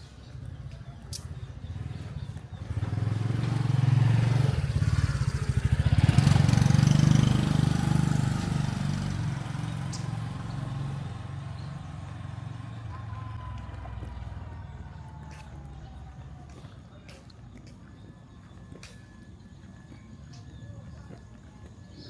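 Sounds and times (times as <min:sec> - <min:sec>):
vehicle engine passing: 0:01.5 - 0:17.1.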